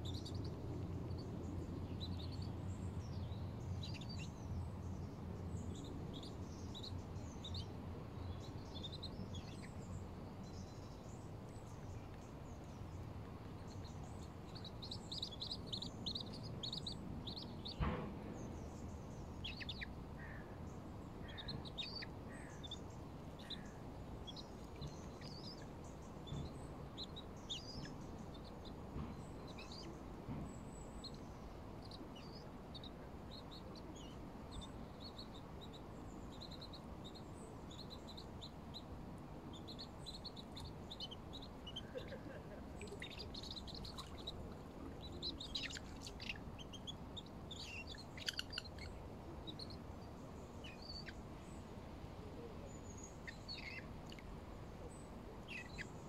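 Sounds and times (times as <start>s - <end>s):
birds chirping and calling: 0.0s - 51.6s, 52.4s - 56.0s
low background rumble: 0.0s - 56.0s
sharp knock: 17.8s - 18.4s.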